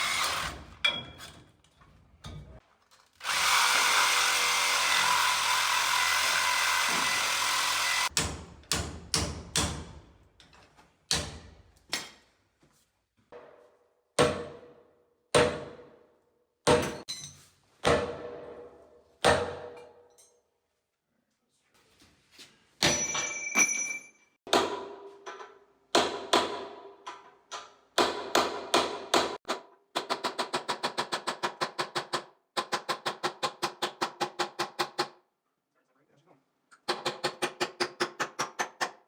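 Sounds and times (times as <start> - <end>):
power tool running: 0.0 - 0.6, 3.2 - 8.1.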